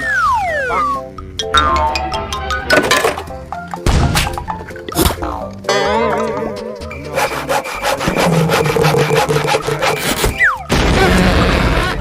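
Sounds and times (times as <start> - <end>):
saw cutting wood: 7.0 - 10.3.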